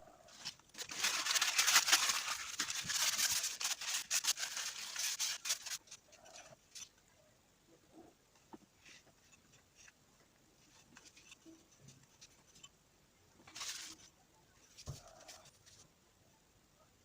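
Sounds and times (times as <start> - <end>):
light clicks and scratches: 8.4 - 12.8.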